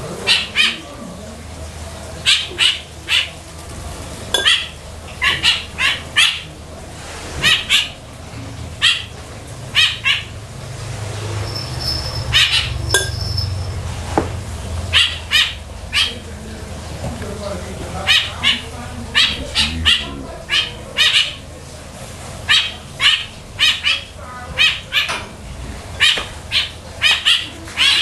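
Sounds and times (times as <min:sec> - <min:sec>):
low steady hum: 0:15.7 - 0:22.2.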